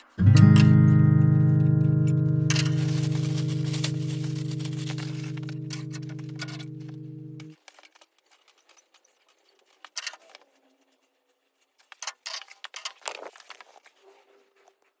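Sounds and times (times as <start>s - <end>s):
handling small objects: 0.0s - 10.6s.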